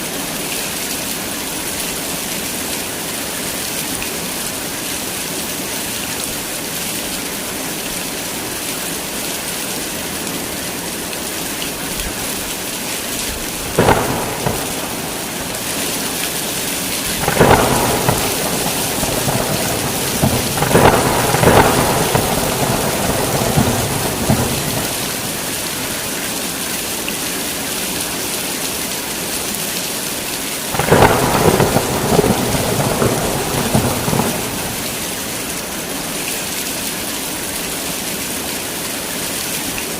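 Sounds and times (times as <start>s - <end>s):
heavy rain: 0.0s - 39.9s
thunder rumbling: 13.3s - 26.2s, 30.7s - 35.6s.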